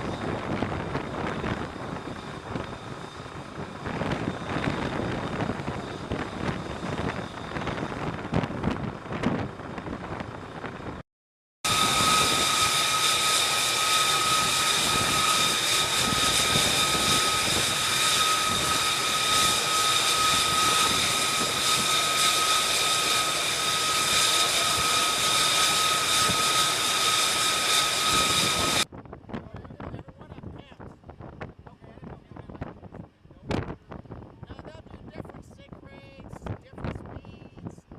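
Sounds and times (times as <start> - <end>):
jet engine with turbine whine: 0.0 - 11.0, 11.6 - 29.2.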